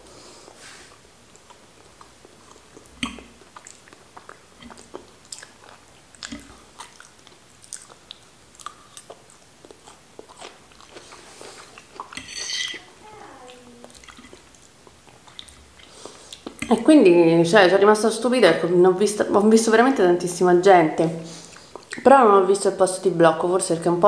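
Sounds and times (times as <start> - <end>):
chewing green beans: 0.9 - 16.9, 21.4 - 22.1.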